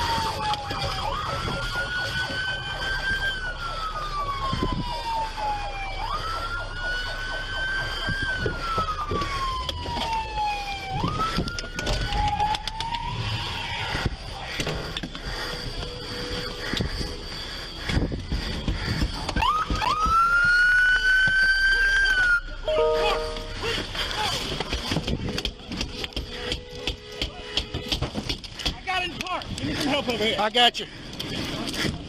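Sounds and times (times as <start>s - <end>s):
police siren wailing: 0.0s - 14.4s, 15.6s - 24.5s.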